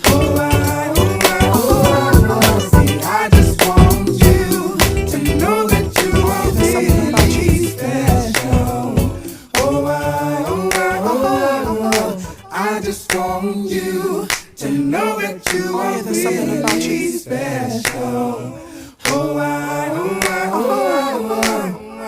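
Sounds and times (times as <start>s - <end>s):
a cappella singing: 0.0s - 22.0s
finger snaps: 14.3s - 14.5s, 19.0s - 19.2s.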